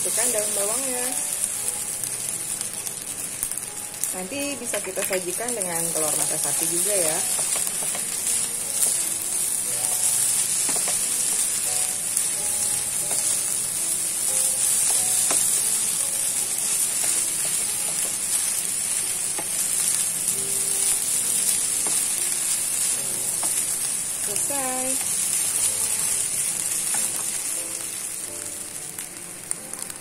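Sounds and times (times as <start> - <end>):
rice sizzling in a pan: 0.0 - 30.0
spatula scraping and tapping pan: 7.1 - 8.2, 10.6 - 11.5.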